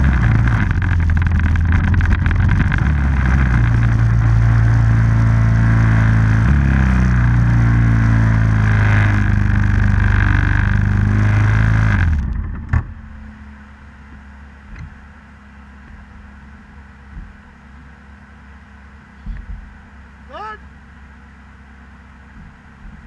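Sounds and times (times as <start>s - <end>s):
small engine running: 0.0s - 12.8s.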